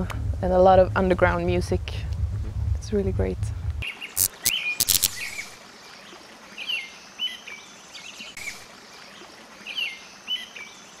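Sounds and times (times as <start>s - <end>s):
background hiss: 0.0s - 6.1s
short bird chirps: 3.8s - 5.6s.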